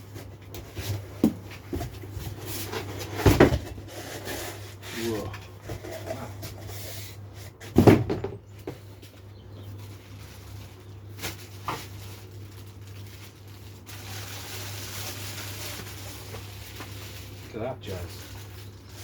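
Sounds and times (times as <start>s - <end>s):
cardboard packaging handled: 9.1s - 19.0s.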